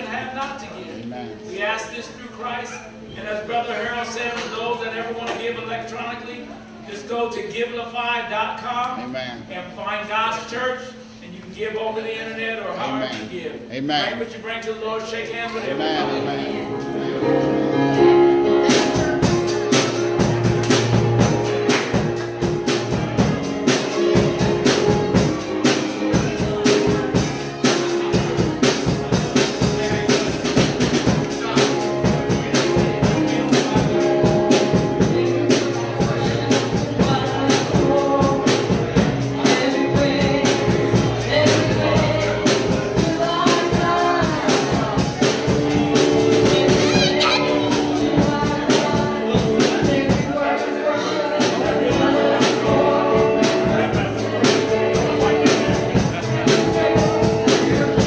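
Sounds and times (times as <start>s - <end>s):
band playing: 13.0s - 58.0s
people singing gospel: 15.6s - 58.0s.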